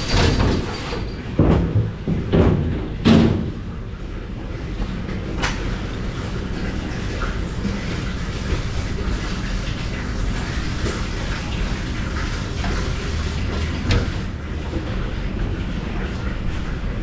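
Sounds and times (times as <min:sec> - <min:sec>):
knocks and bangs of hard objects: 0:01.4 - 0:03.6.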